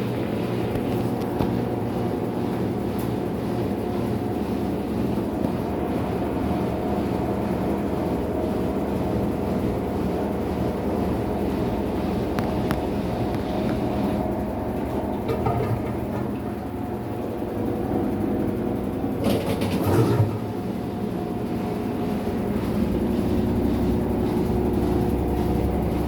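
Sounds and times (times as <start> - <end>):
washing machine running: 0.0 - 26.0.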